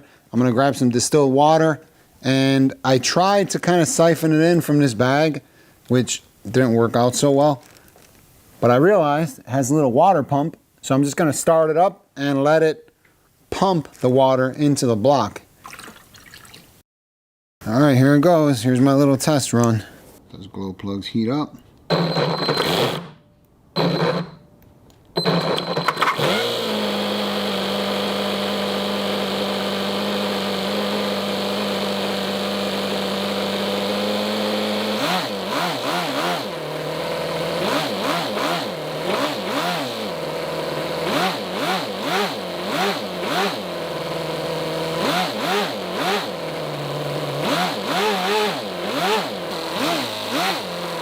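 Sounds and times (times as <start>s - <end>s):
model engine starting and revving: 21.9s - 23.2s, 25.2s - 51.0s.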